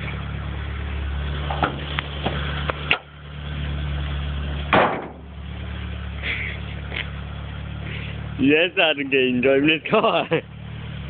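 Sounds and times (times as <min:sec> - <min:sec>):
car engine idling: 0:00.0 - 0:11.0
loud thump: 0:04.7 - 0:05.3.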